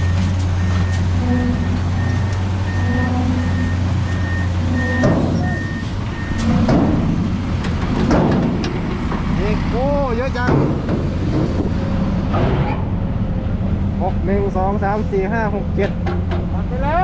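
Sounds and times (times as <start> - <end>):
truck reversing alarm beeping: 0.0 - 7.5
diesel engine running: 0.0 - 17.0
machinery noise: 0.0 - 17.0.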